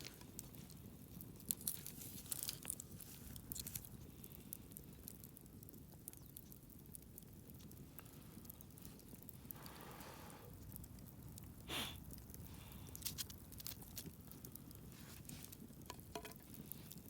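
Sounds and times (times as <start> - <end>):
campfire wood crackling: 0.0 - 17.0.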